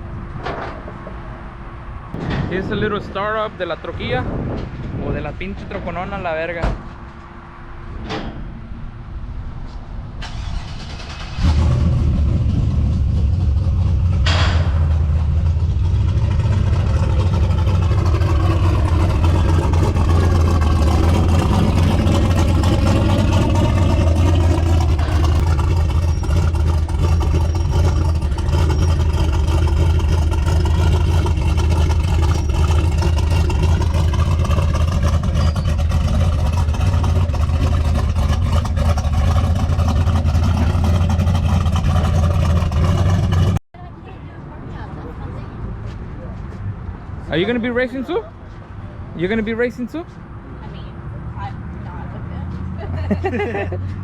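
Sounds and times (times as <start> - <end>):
truck engine starting: 10.1 - 43.6
truck engine idling: 10.4 - 43.6.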